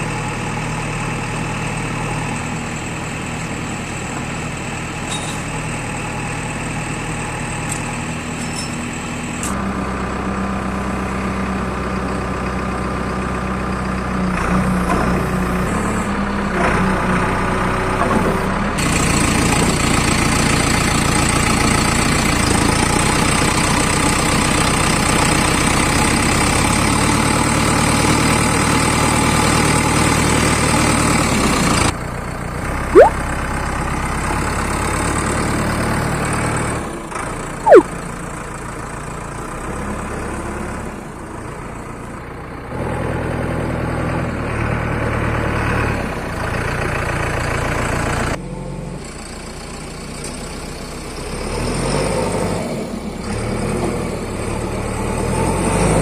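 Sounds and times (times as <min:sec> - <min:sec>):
falling whistle-like glide: 0:37.7 - 0:37.9
rising whistle-like glide: 0:37.7 - 0:37.9.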